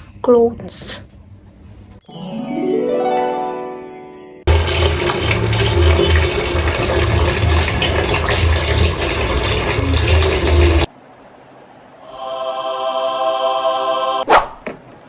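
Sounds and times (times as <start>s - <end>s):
running water rushing: 4.5s - 10.9s.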